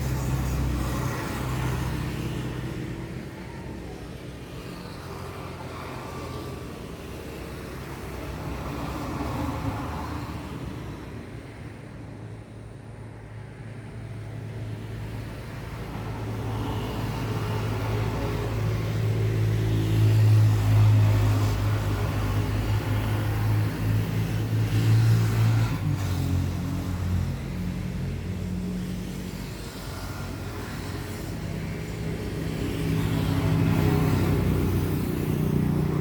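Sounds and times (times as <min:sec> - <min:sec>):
vehicle engine humming: 0:00.0 - 0:05.6.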